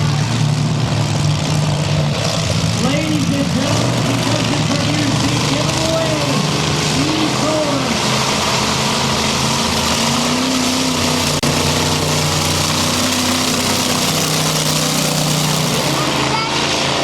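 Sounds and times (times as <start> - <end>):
monster truck engine running: 9.4 - 16.3.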